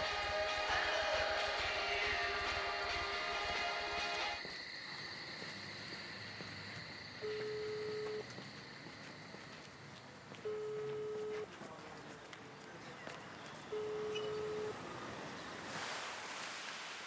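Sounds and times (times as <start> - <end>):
telephone ringback beep: 7.2 - 8.2, 10.5 - 11.4, 13.7 - 14.8
ocean waves rushing: 14.8 - 17.0.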